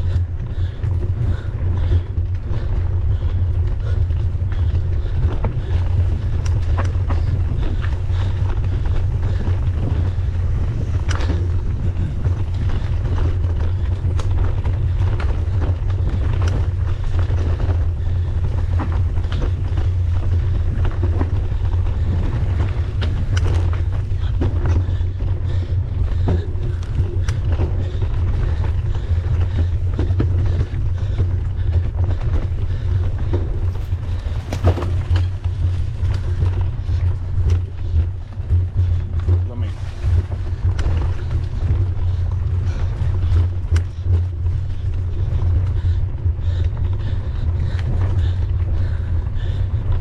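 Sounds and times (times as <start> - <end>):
wind buffeting microphone: 0.0 - 39.2
bike rattling clicks and knocks: 32.7 - 35.7.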